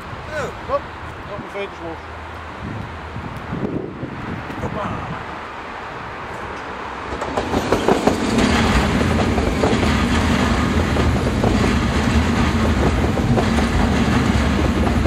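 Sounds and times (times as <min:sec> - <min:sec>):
electric train rumbling on rails: 0:00.0 - 0:15.0
wheels clacking over rail joints: 0:06.3 - 0:15.0.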